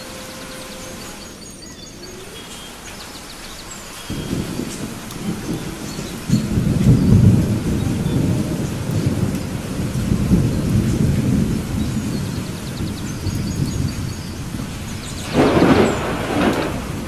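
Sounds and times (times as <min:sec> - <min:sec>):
steady rain: 0:00.0 - 0:17.0
thunder rumbling: 0:04.0 - 0:17.0.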